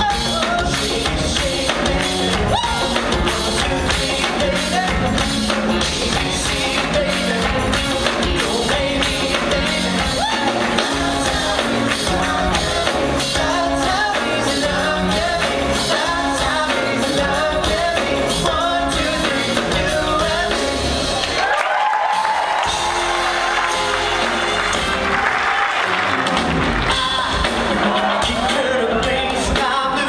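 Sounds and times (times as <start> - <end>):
vocal group singing pop: 0.0 - 21.5, 26.8 - 30.0.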